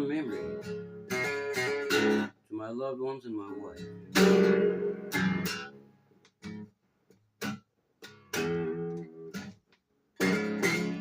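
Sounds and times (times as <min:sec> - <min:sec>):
acoustic guitar strumming: 0:00.0 - 0:02.4, 0:03.5 - 0:06.7, 0:07.4 - 0:09.6, 0:10.2 - 0:11.0.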